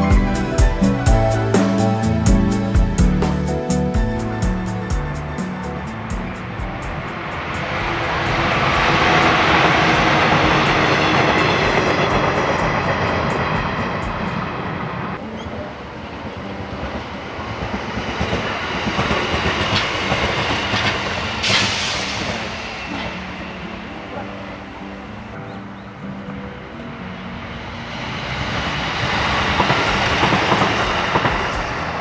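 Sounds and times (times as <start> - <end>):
electric train running past: 5.2 - 32.0
brief hiss: 21.4 - 23.3.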